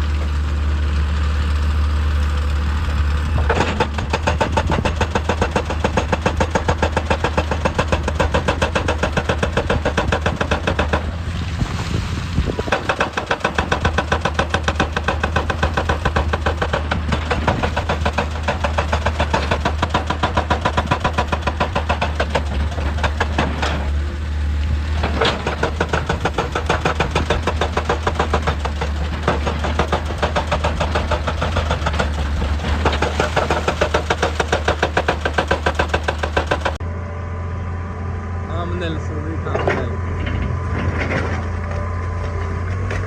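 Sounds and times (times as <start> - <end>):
diesel engine humming: 0.0 - 43.0
hydraulic breaker hammering stone: 3.4 - 11.2, 12.5 - 23.9, 25.0 - 36.8.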